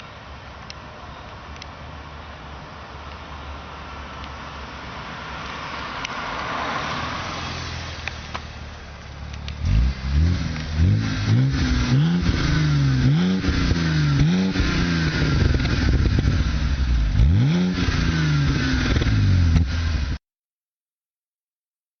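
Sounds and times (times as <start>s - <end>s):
rushing noise: 2.0s - 20.2s
car engine revving: 4.6s - 20.2s.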